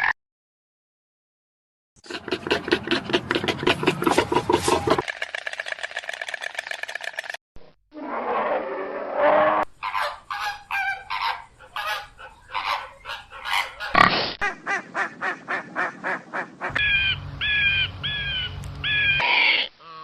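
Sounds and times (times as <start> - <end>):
farm fowl honking: 9.8 - 20.0.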